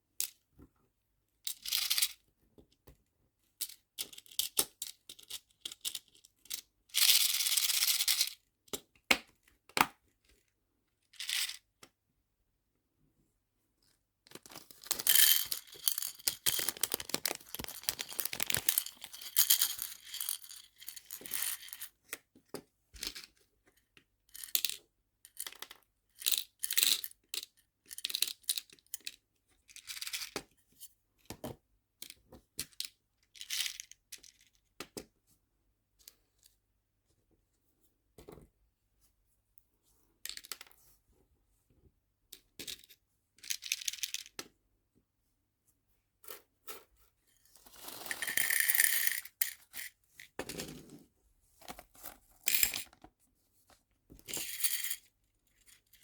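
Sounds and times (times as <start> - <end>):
small charms rattling and clicking: 14.5 - 20.8.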